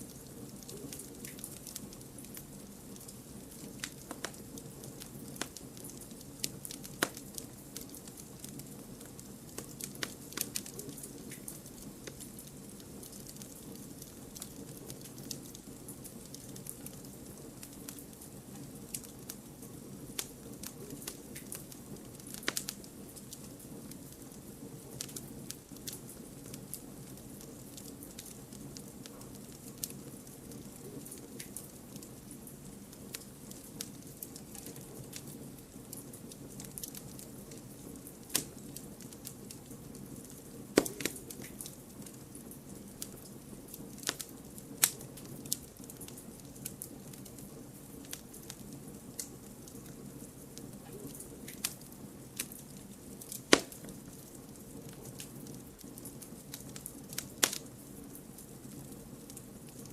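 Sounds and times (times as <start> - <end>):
firewood crackling and popping: 0.0 - 59.9
rush of flame: 51.4 - 55.3.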